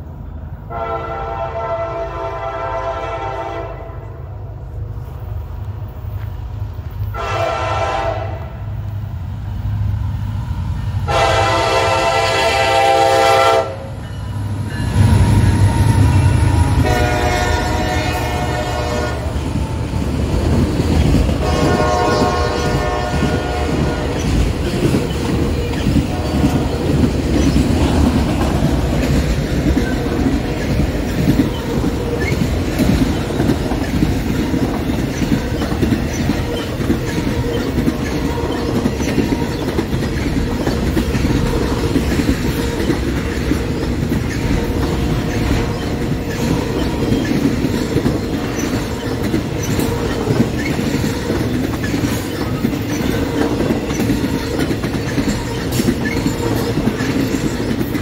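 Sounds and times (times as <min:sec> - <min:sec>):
rumble of train wheels on rails: 0:00.0 - 0:58.0
locomotive air horn blasts: 0:00.7 - 0:04.2, 0:07.1 - 0:08.7, 0:11.1 - 0:14.0, 0:16.8 - 0:19.3, 0:21.4 - 0:24.2.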